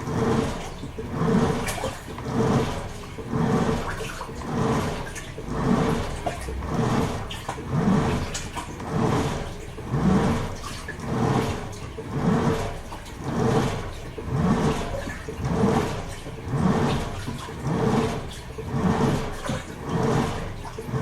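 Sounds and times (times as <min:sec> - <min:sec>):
motor hum: 0:00.0 - 0:21.0
washing machine water swishing: 0:00.0 - 0:21.0.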